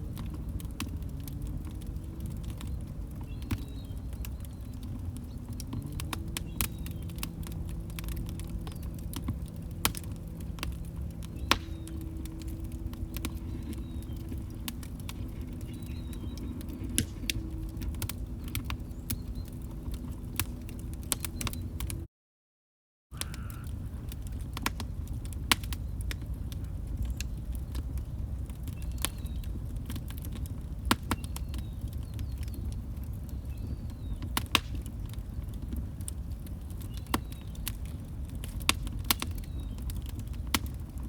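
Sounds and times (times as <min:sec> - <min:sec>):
log fire crackling: 0:00.0 - 0:22.1, 0:23.2 - 0:41.0.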